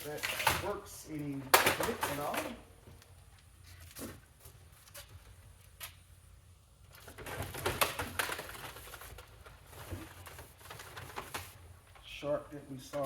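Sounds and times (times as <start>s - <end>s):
plastic parts clattering and rattling: 0.0s - 0.8s, 7.0s - 11.6s.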